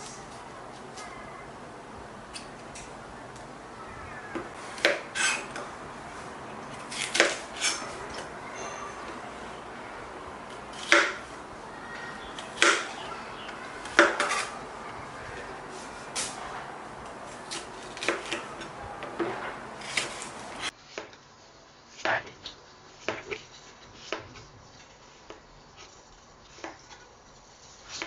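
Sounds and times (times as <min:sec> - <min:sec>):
steady background hiss: 0:19.6 - 0:28.0.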